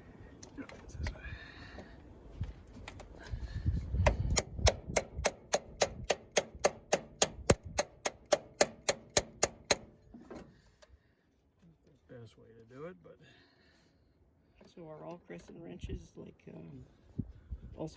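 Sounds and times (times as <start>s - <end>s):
metal tool tapping metal: 4.0s - 9.9s.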